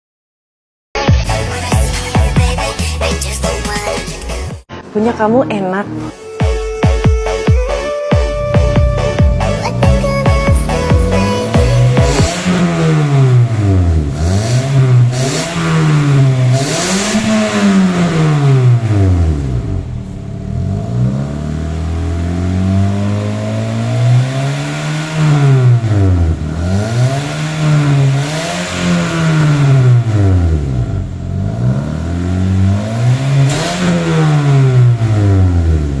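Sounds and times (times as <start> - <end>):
car engine revving: 8.2 - 36.0.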